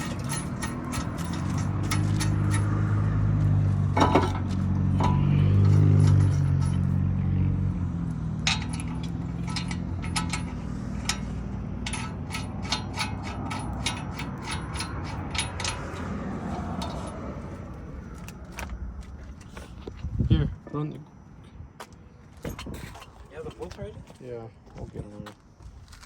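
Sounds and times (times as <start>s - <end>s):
metallic clicks and clinks: 0.0s - 3.0s, 5.0s - 7.0s, 8.4s - 17.4s.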